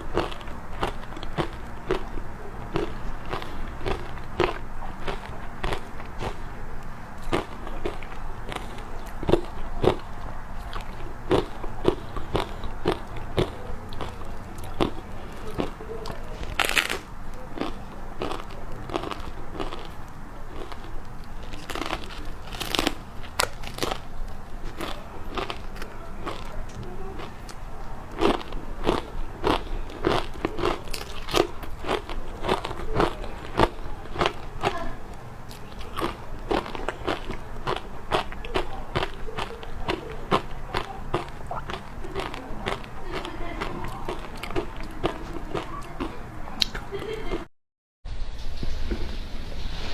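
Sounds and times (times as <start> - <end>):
ice being chewed and crunched: 0.0 - 47.1
person crunching ice: 16.6 - 27.3, 28.1 - 34.8.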